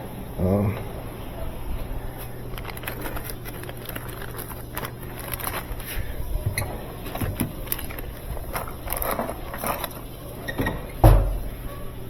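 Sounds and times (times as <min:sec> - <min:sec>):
washing machine motor hum: 0:00.0 - 0:12.0
washing machine clicks and knocks: 0:10.5 - 0:11.6.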